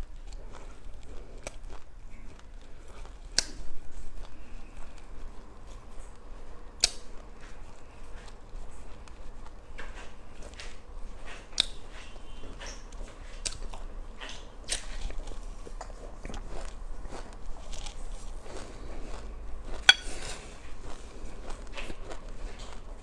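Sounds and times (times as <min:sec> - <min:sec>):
person chewing seeds crunching: 0:00.2 - 0:06.5, 0:12.6 - 0:23.0.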